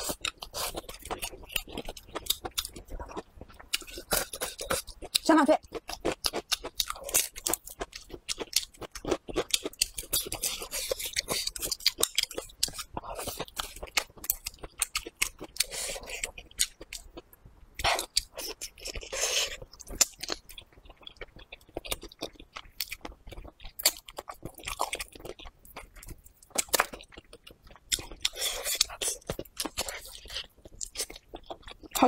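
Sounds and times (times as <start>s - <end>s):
person chewing: 0.0s - 32.0s.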